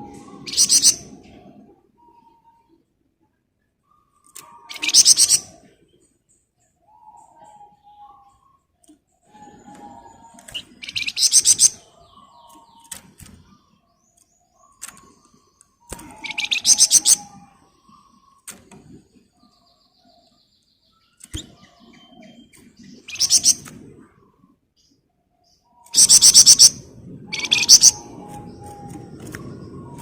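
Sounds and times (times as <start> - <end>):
soft bird chirps: 0.0 - 30.0
songbird rattling trills: 10.3 - 13.5, 15.9 - 18.0, 21.2 - 23.7, 25.9 - 30.0.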